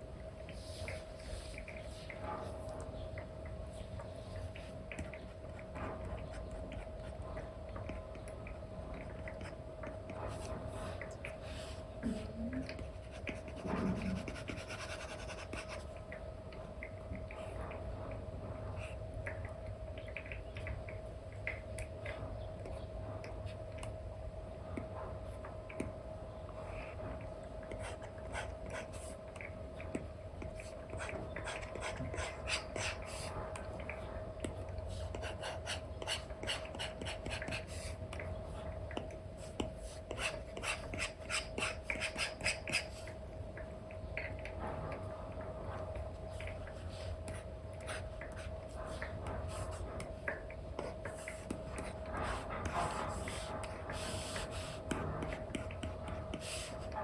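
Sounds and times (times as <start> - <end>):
faint steady hum: 0.0 - 57.0
stylus scratching and tapping on screen: 9.0 - 16.0, 26.6 - 43.1, 46.3 - 57.0.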